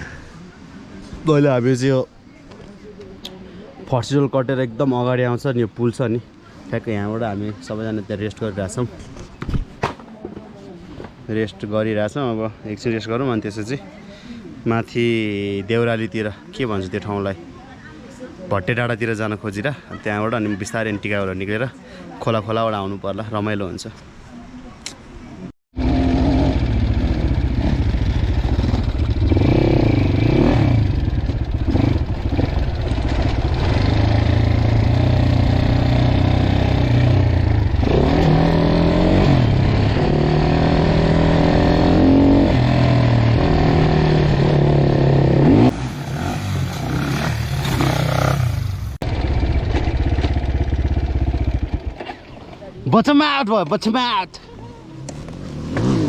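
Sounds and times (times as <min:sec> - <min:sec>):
dirt bike engine revving: 0:25.8 - 0:52.1, 0:55.1 - 0:56.0.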